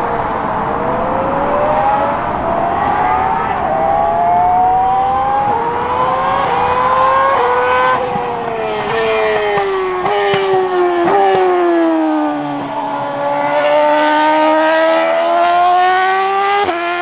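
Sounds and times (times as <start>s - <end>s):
racing car engine accelerating: 0.0s - 10.8s.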